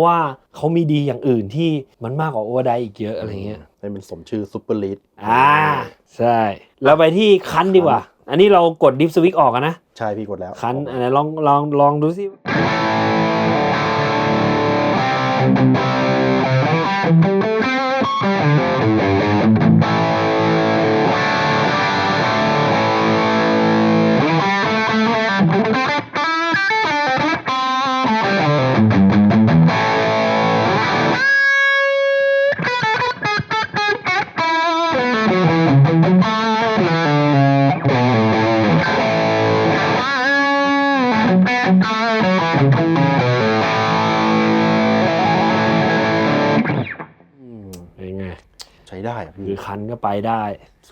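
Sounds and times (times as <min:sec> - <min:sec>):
distorted electric guitar: 0:12.4 - 0:47.2.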